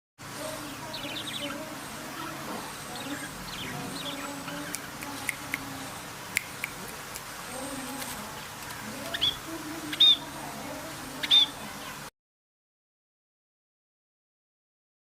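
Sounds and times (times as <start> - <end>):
birds chirping and calling: 0.4 - 12.1.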